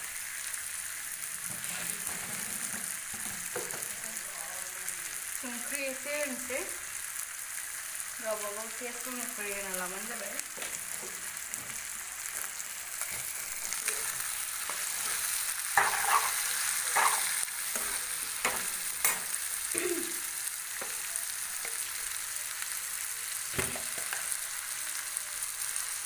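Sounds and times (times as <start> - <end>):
chicken sizzling in a pan: 0.0 - 26.0
ladle scraping a pan: 1.4 - 3.3, 15.8 - 19.2.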